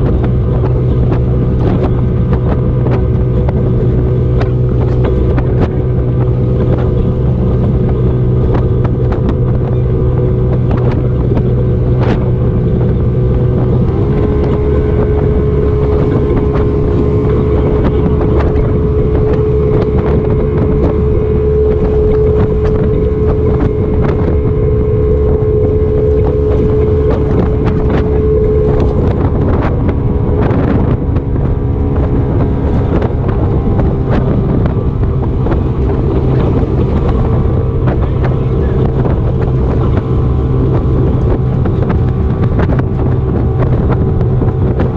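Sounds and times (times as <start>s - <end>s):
motorboat engine running: 0.0s - 44.9s
wind buffeting microphone: 0.0s - 44.9s.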